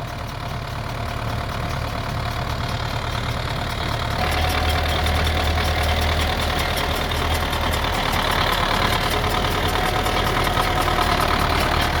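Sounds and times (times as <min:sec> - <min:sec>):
tractor diesel engine running: 0:00.0 - 0:12.0
fast even ticking: 0:00.1 - 0:12.0.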